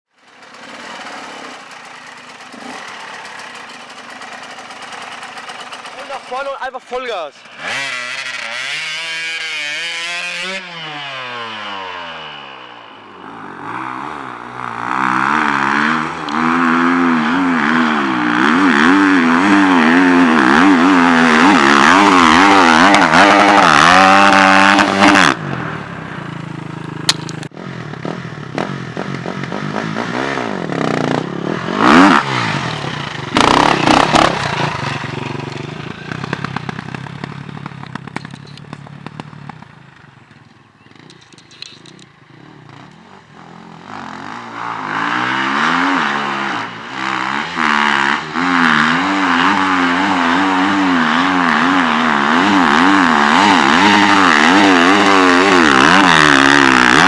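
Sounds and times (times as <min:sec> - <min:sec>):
dirt bike engine revving: 0:00.2 - 0:57.0.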